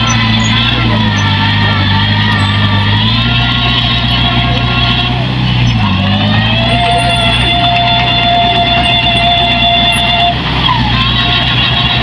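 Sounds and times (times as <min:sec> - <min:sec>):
heavy machine engine running: 0:00.0 - 0:12.0
high steady whine: 0:00.0 - 0:12.0.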